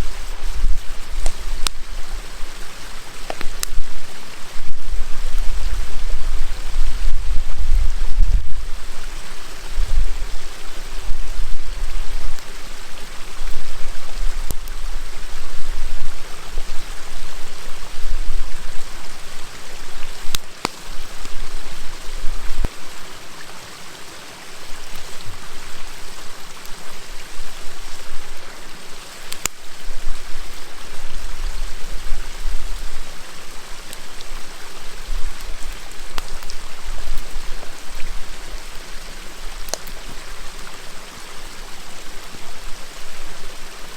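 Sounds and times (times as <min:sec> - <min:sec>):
river water flowing: 0:00.0 - 0:43.9
wood fire crackling: 0:00.0 - 0:43.9.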